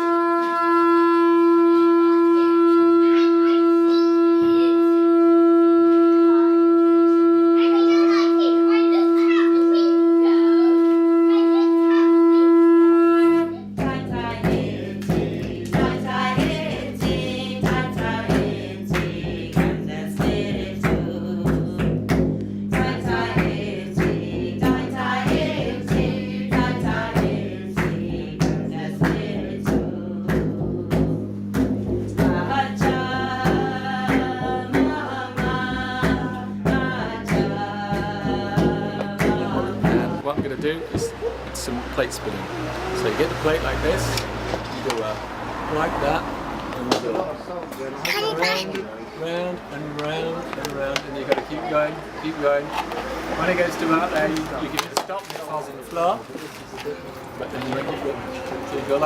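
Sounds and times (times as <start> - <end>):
long horn note: 0.0 - 13.8
music with steady beat: 0.0 - 41.8.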